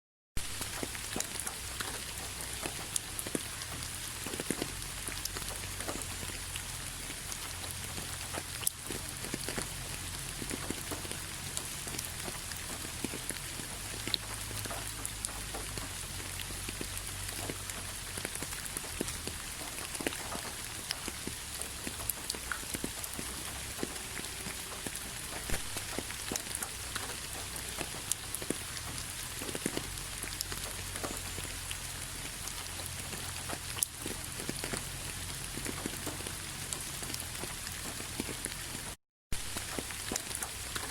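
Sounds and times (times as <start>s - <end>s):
raindrops tapping: 0.4s - 40.9s
rainfall hiss: 0.4s - 40.9s.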